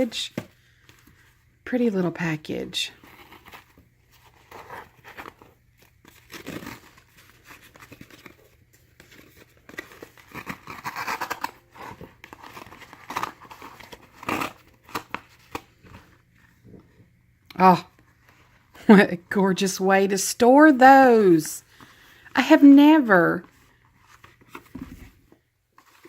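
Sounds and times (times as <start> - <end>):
gift wrapping crinkling: 2.9 - 16.7.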